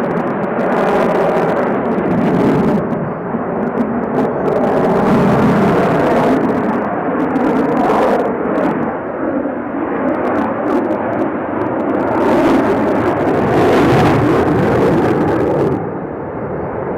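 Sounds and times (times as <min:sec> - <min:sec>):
fighter jet engines roaring: 0:00.0 - 0:16.9.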